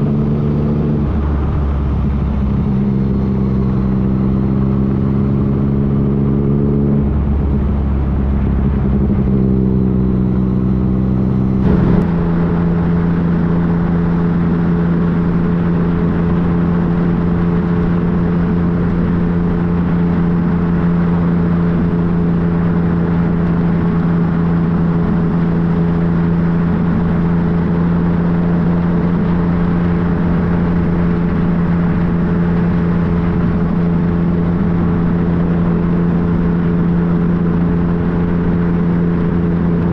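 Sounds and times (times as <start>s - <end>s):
wind noise: 0.0s - 21.7s
motorcycle engine cruising: 0.0s - 39.9s.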